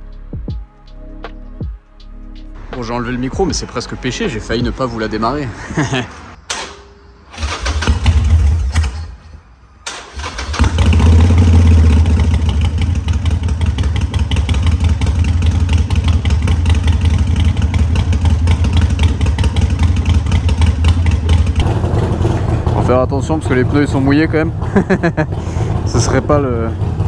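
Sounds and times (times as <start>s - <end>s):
motorcycle engine starting and idling: 6.4s - 27.0s.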